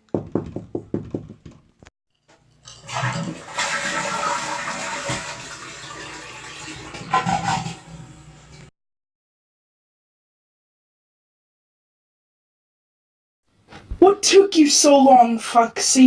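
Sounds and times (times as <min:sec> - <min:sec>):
toilet flushing: 0:02.7 - 0:08.7.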